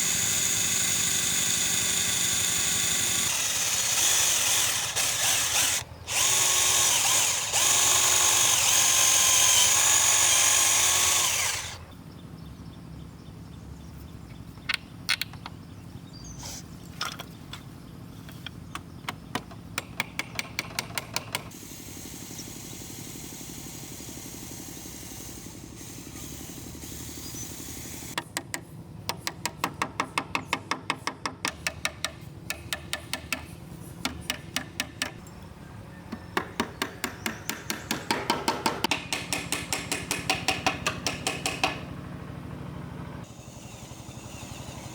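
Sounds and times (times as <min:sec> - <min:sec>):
electric drill running: 0:00.0 - 0:11.9, 0:21.5 - 0:28.2, 0:43.2 - 0:44.9.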